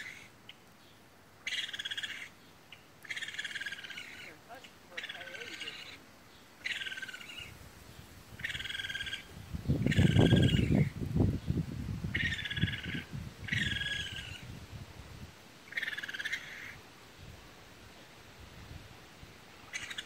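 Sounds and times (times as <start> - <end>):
fast trilling call: 1.5 - 2.3, 3.1 - 6.0, 6.6 - 7.6, 8.4 - 10.9, 12.1 - 14.5, 15.7 - 16.8, 19.6 - 20.0.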